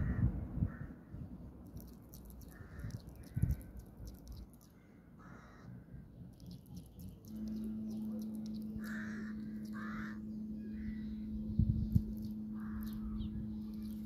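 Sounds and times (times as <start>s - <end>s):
steady low hum: 0.0s - 14.0s
bird cawing: 2.4s - 3.8s, 4.8s - 6.1s, 7.6s - 11.4s, 12.4s - 13.4s.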